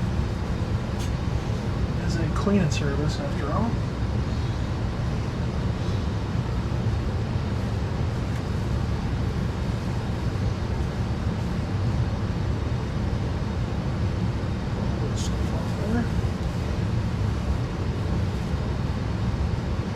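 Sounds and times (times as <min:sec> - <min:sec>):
blower running: 0:00.0 - 0:12.1.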